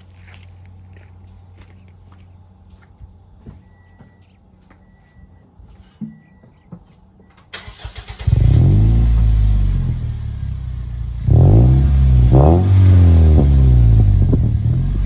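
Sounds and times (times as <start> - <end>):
engine throttle blips: 7.3 - 15.0
car engine starting and idling: 7.4 - 15.0.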